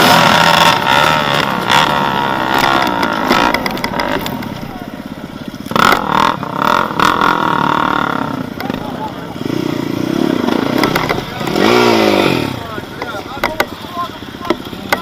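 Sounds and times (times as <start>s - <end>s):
vehicle engine revving: 0.0s - 15.0s.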